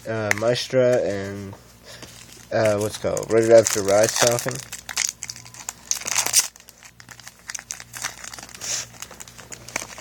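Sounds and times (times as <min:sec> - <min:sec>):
foil wrapper crinkling: 0:02.2 - 0:10.0.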